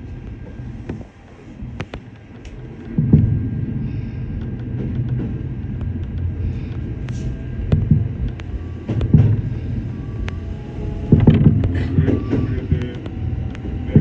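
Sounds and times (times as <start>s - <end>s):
train rumbling: 0.0s - 14.0s
running gear knocks and clicks: 11.1s - 14.0s.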